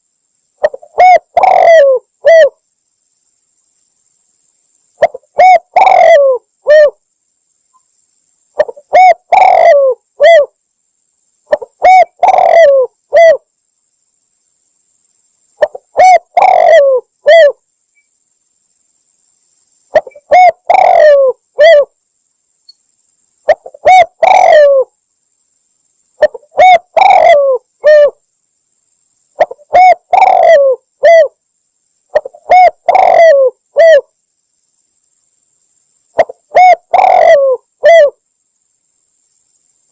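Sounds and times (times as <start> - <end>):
dove cooing: 0.6 - 2.6, 5.0 - 7.0, 8.6 - 10.5, 11.5 - 13.4, 15.6 - 17.6, 19.9 - 21.9, 23.5 - 24.9, 26.2 - 28.2, 29.4 - 31.4, 32.1 - 34.1, 36.2 - 38.2.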